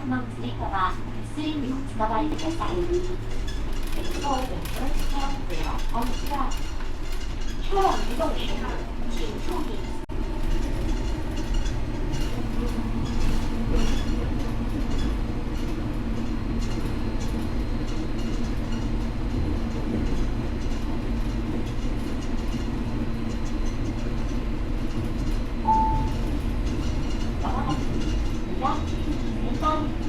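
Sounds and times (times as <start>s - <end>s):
train car rumbling: 0.0s - 30.0s
brief high tone: 25.7s - 26.2s.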